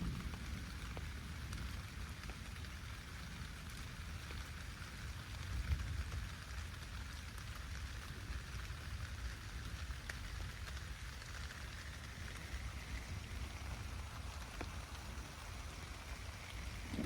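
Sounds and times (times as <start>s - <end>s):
low thunder rumble: 0.0s - 2.1s, 12.4s - 17.0s
rain pattering: 0.0s - 17.0s.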